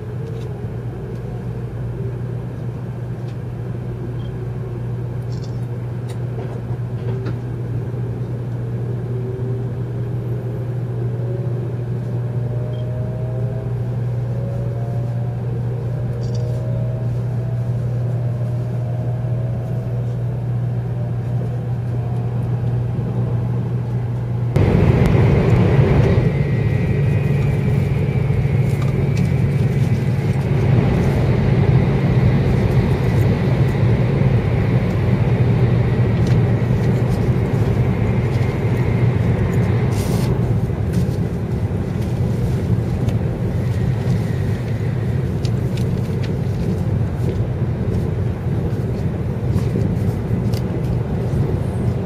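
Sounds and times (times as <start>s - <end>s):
train running rumble: 0.0s - 52.0s
traction motor whine rising: 24.5s - 46.4s.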